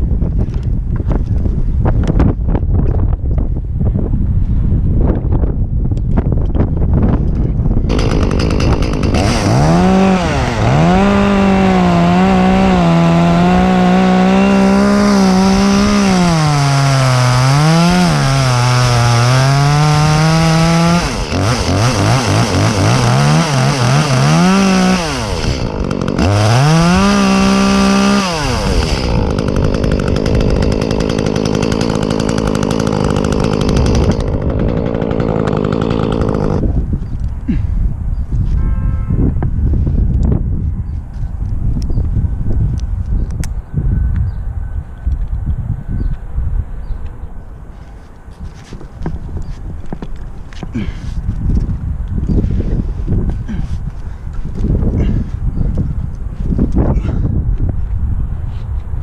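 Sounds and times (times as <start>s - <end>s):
chainsaw cutting wood: 7.9s - 36.9s.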